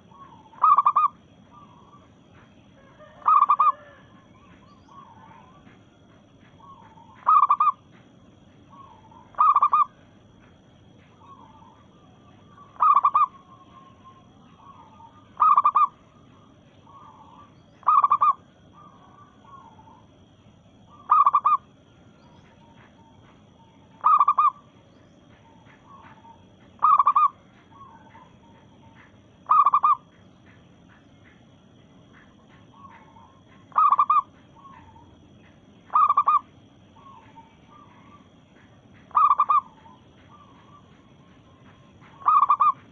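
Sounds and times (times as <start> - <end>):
dove calling: 0.0 - 42.9.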